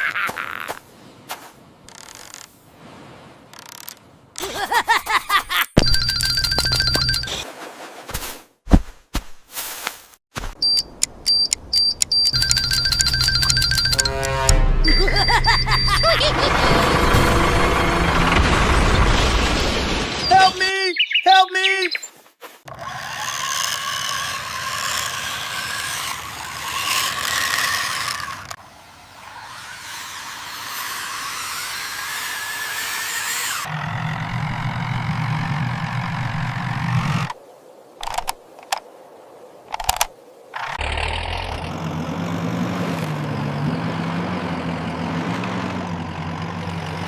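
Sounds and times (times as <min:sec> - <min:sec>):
vehicle engine hum: 0:11.0 - 0:19.1, 0:25.2 - 0:37.3, 0:40.8 - 0:47.0
small motor whirring: 0:22.7 - 0:28.6, 0:29.2 - 0:37.3.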